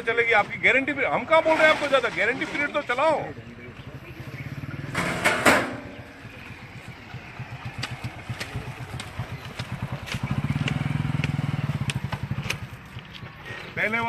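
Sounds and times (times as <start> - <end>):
small engine pulsing: 3.3 - 13.6
sharp loud noise: 4.8 - 6.0.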